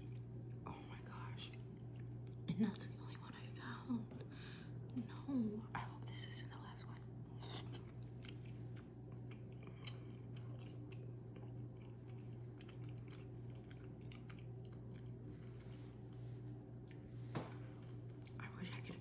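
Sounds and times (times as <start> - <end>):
chewing and wet mouth sounds: 0.0 - 5.2, 5.8 - 19.0.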